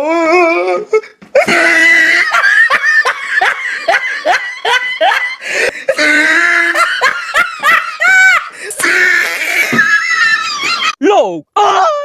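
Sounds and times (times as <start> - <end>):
people laughing hard: 1.4 - 11.0.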